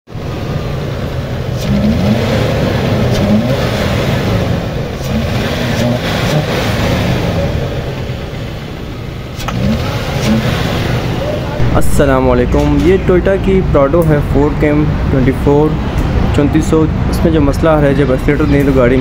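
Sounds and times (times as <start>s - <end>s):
misfiring engine revving: 0.1s - 15.2s.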